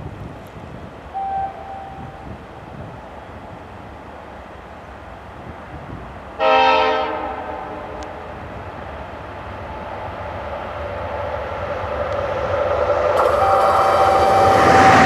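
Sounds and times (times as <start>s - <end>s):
train rumbling: 0.0s - 15.0s
locomotive horn blast: 1.2s - 2.2s, 6.4s - 8.2s, 13.2s - 15.0s.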